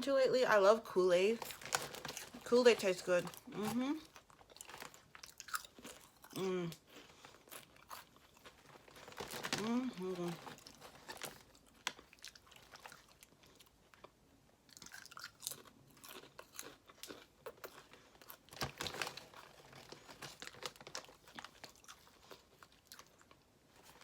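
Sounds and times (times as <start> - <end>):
person chewing potato chips: 1.4 - 24.0.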